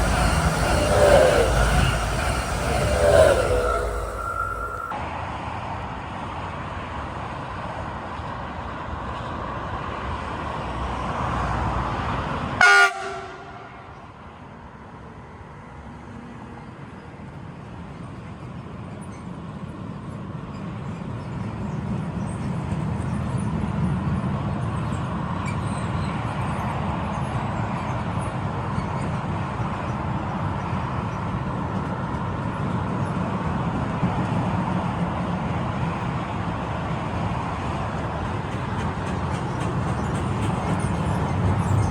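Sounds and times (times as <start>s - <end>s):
freight wagons rumbling on rails: 0.0s - 4.9s, 32.0s - 41.9s
locomotive horn blast: 0.0s - 4.9s, 12.6s - 13.7s.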